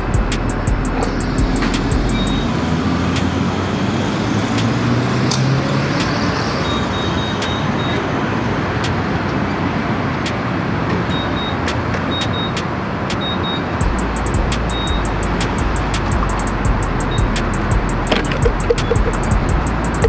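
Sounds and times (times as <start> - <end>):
regular sharp ticks: 0.0 - 3.6, 4.4 - 6.7, 11.7 - 20.0
car engine and road noise: 0.0 - 20.0.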